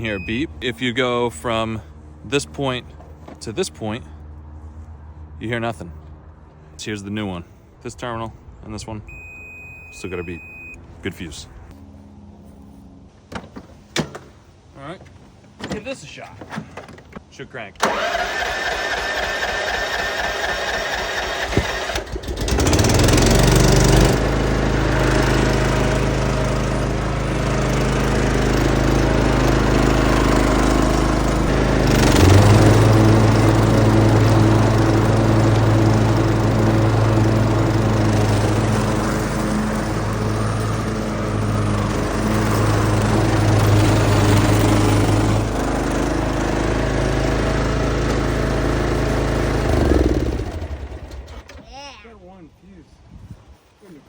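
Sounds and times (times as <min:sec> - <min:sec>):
mower engine starting and running: 0:00.0 - 0:03.5, 0:17.8 - 0:51.8.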